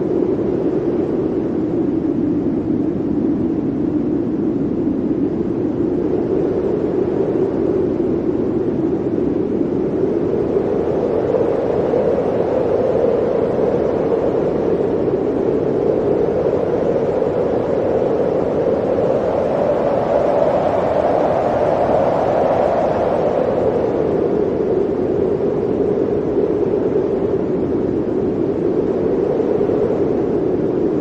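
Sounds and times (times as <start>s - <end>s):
blizzard wind blowing: 0.0s - 31.0s.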